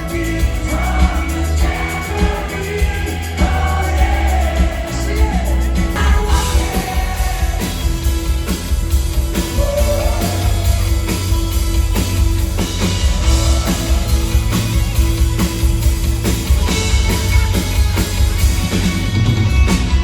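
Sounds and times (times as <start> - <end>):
person singing: 0.0 - 8.0, 9.6 - 11.2
drum beat: 0.0 - 20.0
live rock band playing: 0.0 - 20.0.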